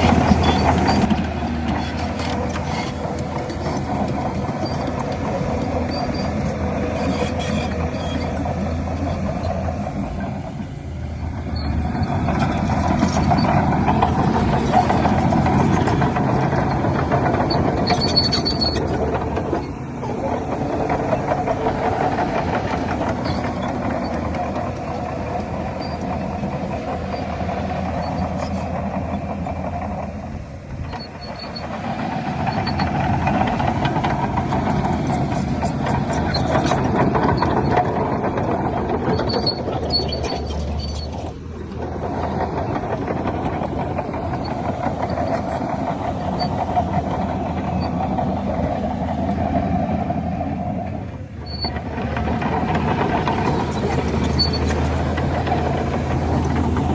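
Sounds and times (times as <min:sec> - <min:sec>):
bulldozer diesel engine running: 0:00.0 - 0:56.9.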